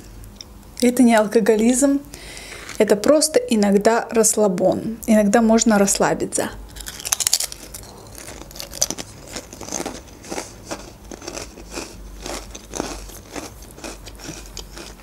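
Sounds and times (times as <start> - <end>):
potato chip crunching: 6.7 - 15.0.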